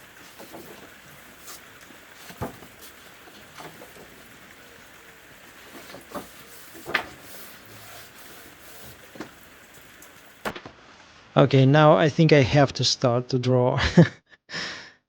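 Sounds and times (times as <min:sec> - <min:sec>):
paper pages turning: 0:00.0 - 0:10.6
faint hiss: 0:00.0 - 0:12.0
paper flicks and taps: 0:00.1 - 0:10.6.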